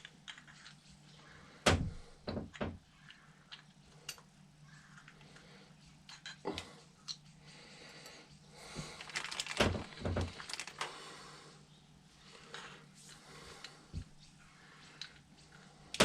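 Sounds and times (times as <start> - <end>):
metal parts clicking and tapping: 0.0 - 0.9, 6.1 - 6.4
faint low hum: 0.0 - 16.0.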